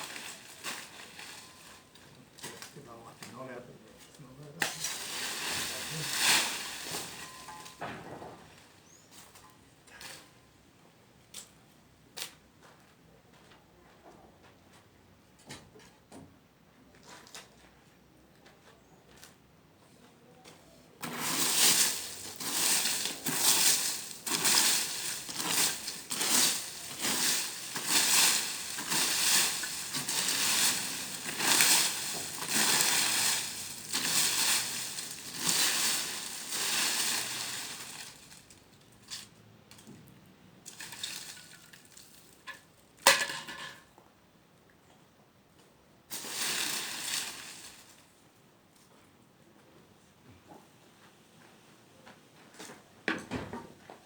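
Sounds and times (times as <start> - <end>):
crunching of dry material: 0.0 - 7.5, 21.0 - 39.3.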